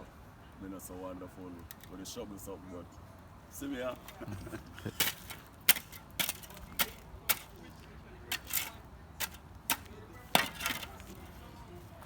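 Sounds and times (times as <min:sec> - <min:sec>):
metal shovel scraping rubble: 0:05.0 - 0:07.6, 0:08.3 - 0:11.3.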